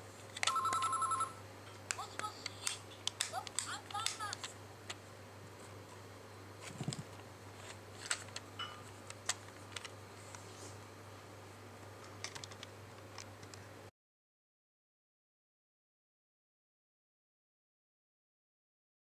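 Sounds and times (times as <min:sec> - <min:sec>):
low electrical hum: 0:00.0 - 0:13.9
toy phone clicks and taps: 0:00.4 - 0:01.3, 0:01.9 - 0:04.5.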